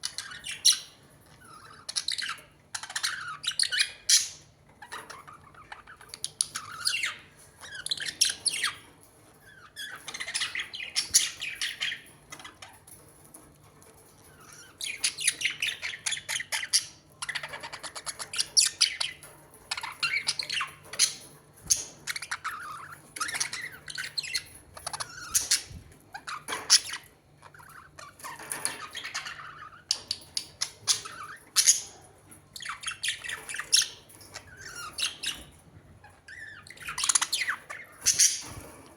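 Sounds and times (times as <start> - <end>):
birds chirping and squawking: 0.0 - 38.9.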